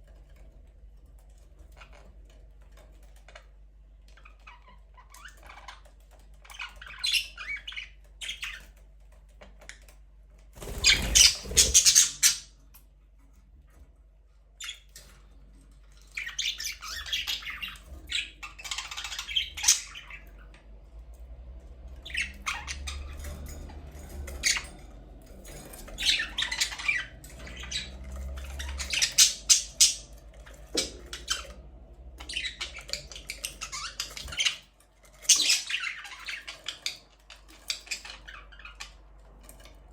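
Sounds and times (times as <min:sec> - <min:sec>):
budgerigars chattering: 0:10.6 - 0:12.5, 0:16.2 - 0:20.3, 0:25.9 - 0:30.1, 0:32.2 - 0:34.6, 0:35.3 - 0:38.9.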